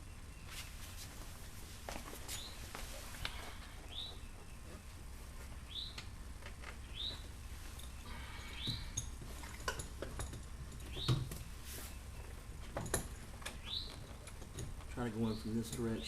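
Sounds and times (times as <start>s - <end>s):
bird chirping: 2.3s - 5.0s, 5.6s - 6.1s, 6.7s - 9.0s, 10.8s - 12.5s, 13.4s - 14.4s, 15.0s - 16.0s.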